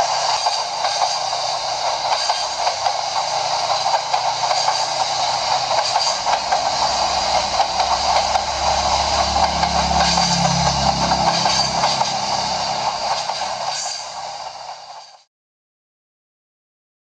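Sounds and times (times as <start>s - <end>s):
model train wheels clattering: 0.0s - 15.2s
low hum: 6.9s - 13.4s.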